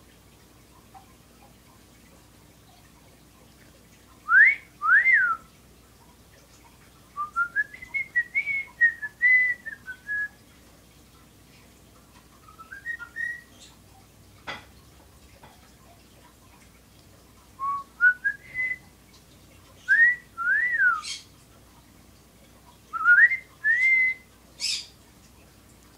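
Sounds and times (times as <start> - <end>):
pet bird whistling: 12.4 - 13.7.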